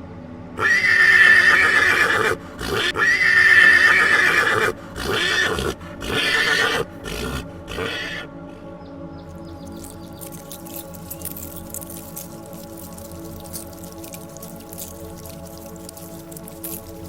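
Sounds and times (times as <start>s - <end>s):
horse whinnying: 0.6s - 8.3s.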